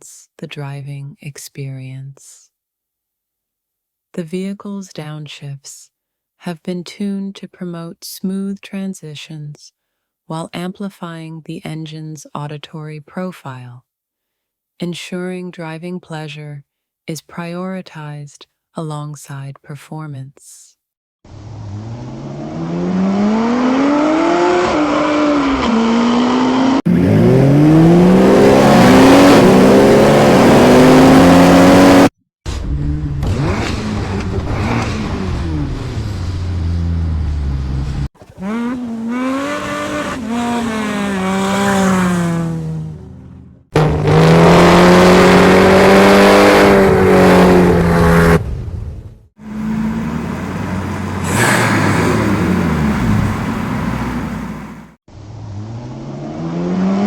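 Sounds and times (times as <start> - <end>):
car engine revving and accelerating: 21.3 - 32.1, 32.8 - 48.5, 49.4 - 57.0.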